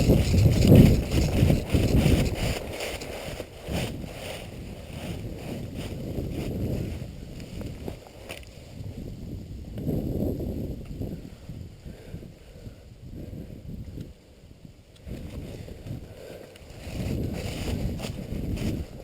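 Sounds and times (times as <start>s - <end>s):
sharp ticks: 0.0s - 3.2s
footsteps on rough ground: 0.0s - 9.0s, 15.1s - 19.0s
wind buffeting microphone: 0.0s - 19.0s.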